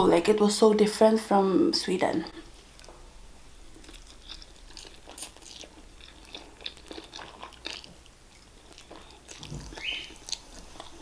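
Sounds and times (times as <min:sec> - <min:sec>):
slurping and chewing noodles: 0:03.7 - 0:11.0.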